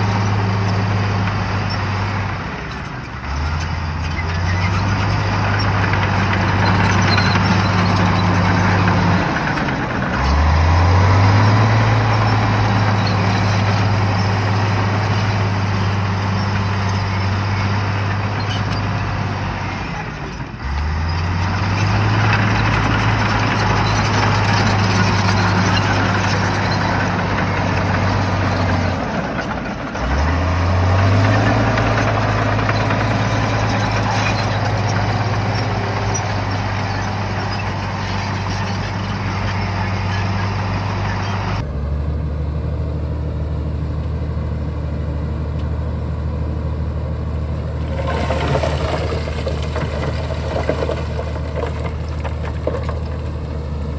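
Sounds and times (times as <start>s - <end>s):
bulldozer diesel engine revving: 0.0s - 53.9s.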